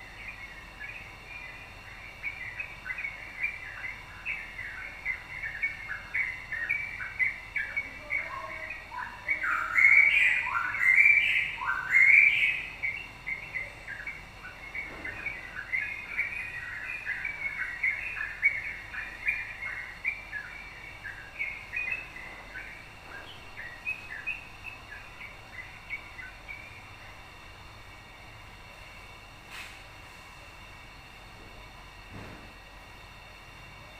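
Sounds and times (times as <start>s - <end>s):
loud upward-sweeping bird notes: 0.0s - 26.9s.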